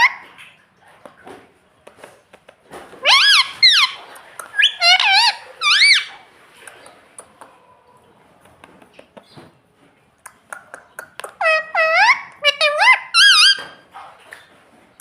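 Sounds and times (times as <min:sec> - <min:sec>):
parrot high-pitched calls: 0:03.0 - 0:06.2, 0:11.3 - 0:13.8.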